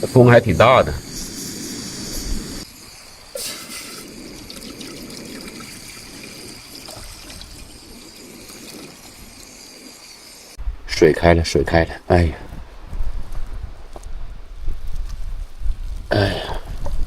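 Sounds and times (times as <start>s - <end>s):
wind on microphone: 0.0s - 11.0s, 12.4s - 17.0s
water rushing: 2.8s - 10.6s.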